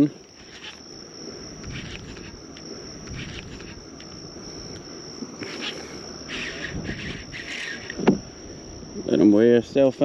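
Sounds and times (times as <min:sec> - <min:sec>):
insect trill: 0:00.0 - 0:10.0.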